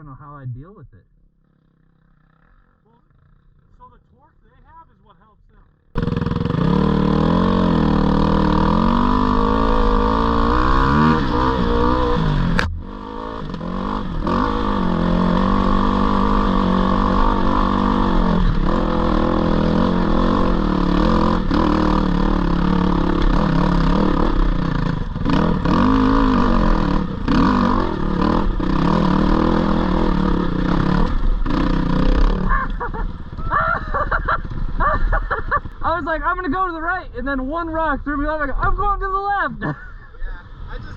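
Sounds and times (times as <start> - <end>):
dirt bike engine climbing: 1.2 - 40.9
sharp crack: 12.5 - 12.8.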